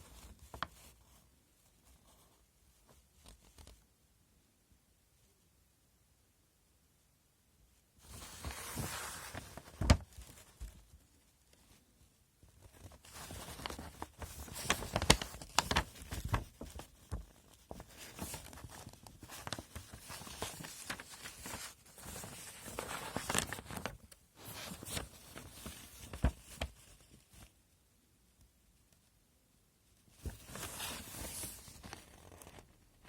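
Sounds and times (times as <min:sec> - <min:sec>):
plastic packaging rustling and crinkling: 0:08.0 - 0:11.8, 0:12.4 - 0:27.5, 0:30.1 - 0:32.7.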